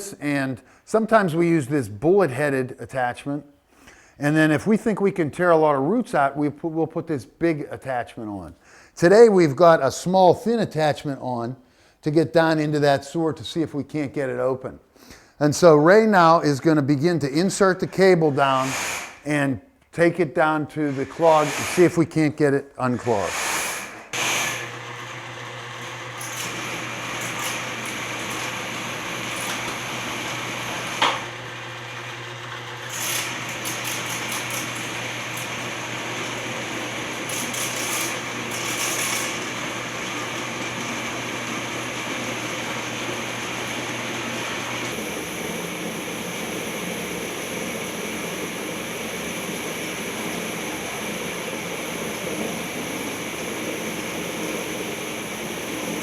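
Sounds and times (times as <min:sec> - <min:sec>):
drain snake motor running: 0:23.2 - 0:56.0.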